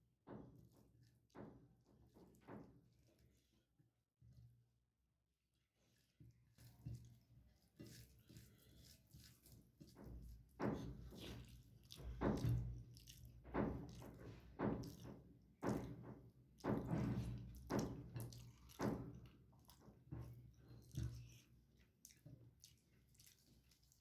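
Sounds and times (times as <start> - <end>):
person chewing food: 7.8 - 16.0, 16.6 - 24.0.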